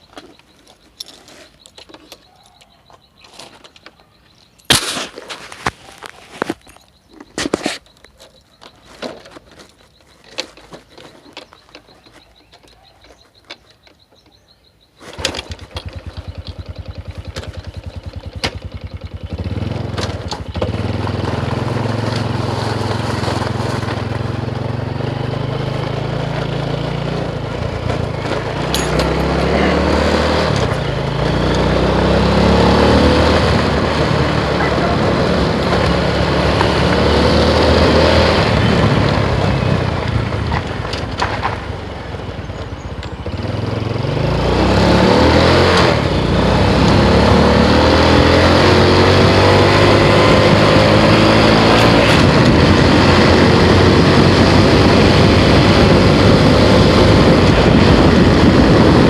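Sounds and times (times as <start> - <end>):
motorcycle engine running: 15.1 - 59.0.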